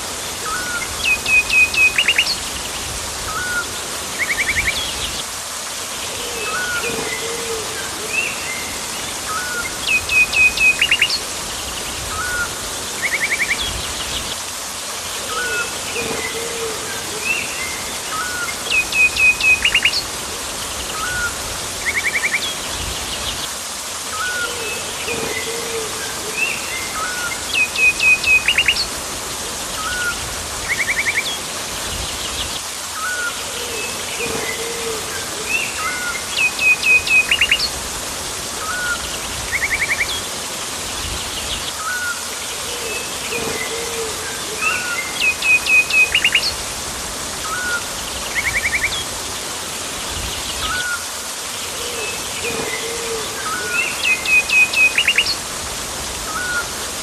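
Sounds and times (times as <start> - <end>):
steady background hiss: 0.0 - 57.0
tropical birds calling: 49.9 - 55.4.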